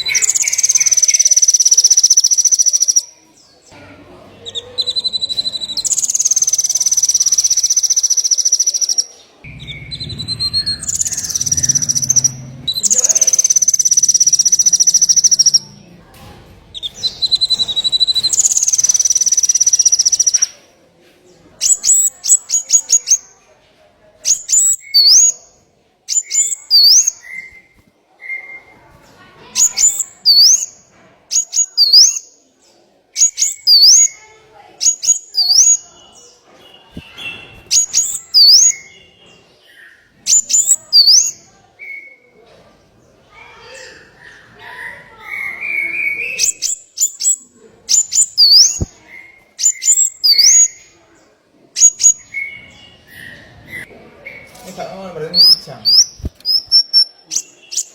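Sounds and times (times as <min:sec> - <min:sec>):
songbird ticks and upslurred whistle: 0:00.1 - 0:03.1, 0:05.0 - 0:15.7, 0:16.8 - 0:20.5.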